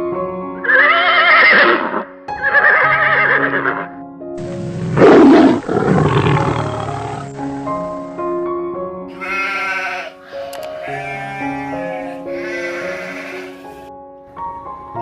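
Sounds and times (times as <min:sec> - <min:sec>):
background music: 0:00.0 - 0:15.0
horse neighing: 0:00.6 - 0:03.9, 0:09.1 - 0:13.8
rough animal call: 0:04.6 - 0:07.4, 0:09.1 - 0:13.8.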